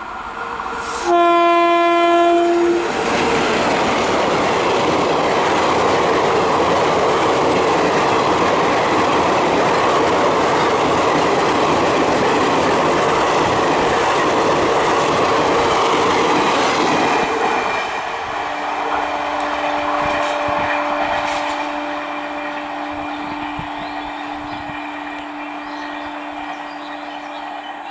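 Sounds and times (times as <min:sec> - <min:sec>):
train coaches rushing past: 0:00.0 - 0:27.9.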